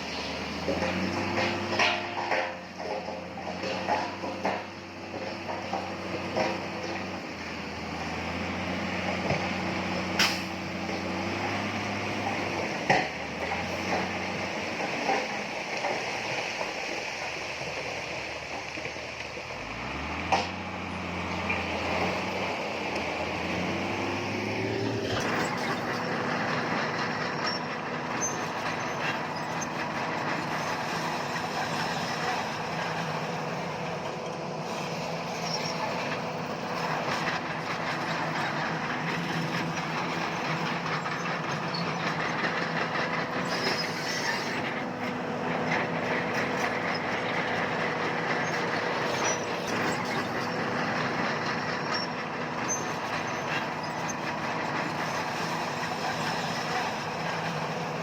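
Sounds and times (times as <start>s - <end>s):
bulldozer diesel engine running: 0.0s - 58.0s
metallic clatter of tracks: 0.6s - 8.2s, 21.4s - 58.0s.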